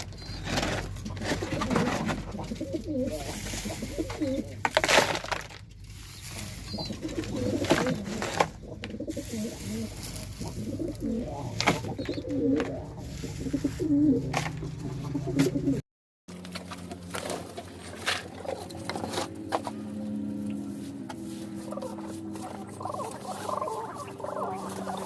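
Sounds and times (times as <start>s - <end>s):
pigeons cooing: 0.0s - 4.6s, 6.2s - 15.8s, 18.3s - 19.3s, 21.5s - 25.0s.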